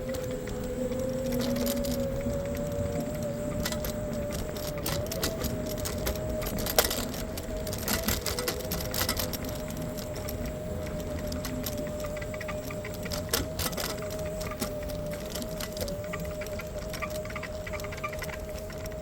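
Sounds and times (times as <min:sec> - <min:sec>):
electric scooter motor whine: 0:00.0 - 0:19.0
rattles and clicks over bumps: 0:00.0 - 0:19.0
road and wind rumble: 0:00.0 - 0:19.0.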